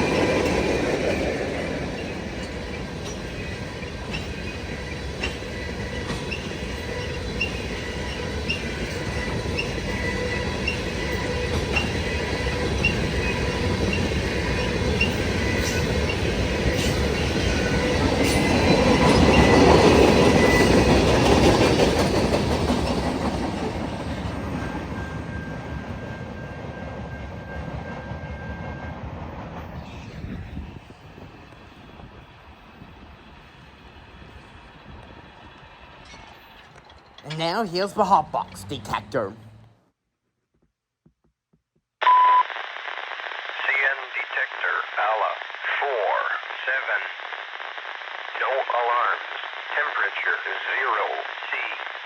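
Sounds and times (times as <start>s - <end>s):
freight train rolling past: 0.0s - 39.7s.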